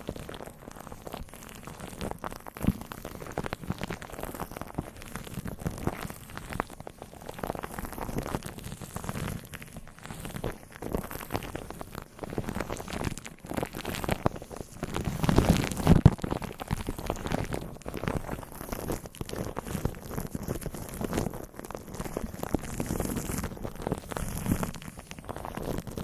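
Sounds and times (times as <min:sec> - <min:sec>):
small crackles and rustles: 0:00.0 - 0:26.0.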